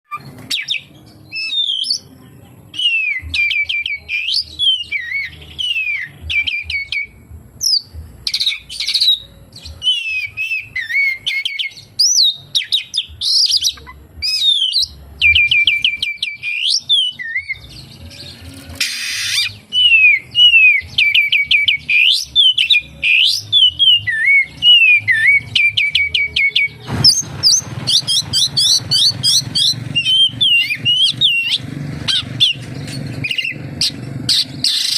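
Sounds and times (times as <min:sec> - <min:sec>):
harsh bird call burst: 0:18.7 - 0:34.9.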